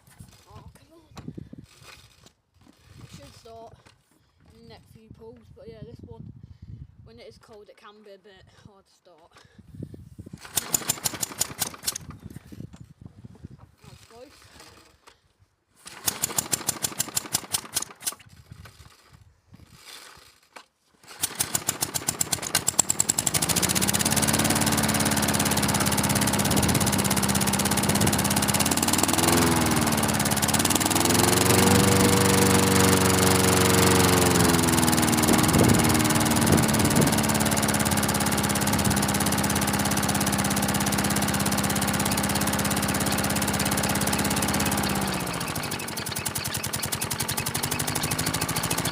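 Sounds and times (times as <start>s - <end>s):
lawnmower engine starting and running: 0.0s - 1.0s, 10.4s - 12.6s, 13.7s - 48.9s
pull cord being pulled: 10.4s - 12.4s, 13.8s - 15.2s, 15.8s - 48.9s.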